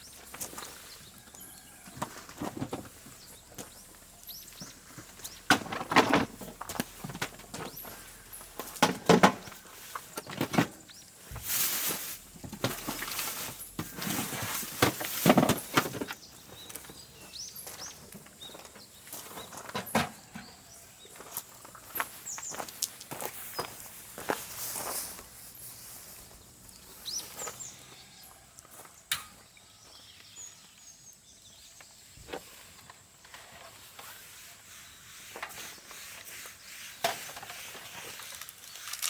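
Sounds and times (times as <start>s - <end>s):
rustling: 4.8s - 16.2s
slow footsteps: 11.2s - 30.3s
bird chirps: 26.3s - 28.4s.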